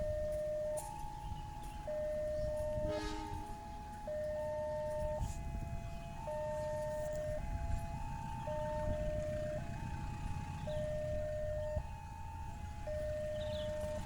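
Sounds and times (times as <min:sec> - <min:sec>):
level crossing warning alarm: 0:00.0 - 0:14.0
traffic rumble: 0:00.0 - 0:14.0
horn toot: 0:02.8 - 0:03.6.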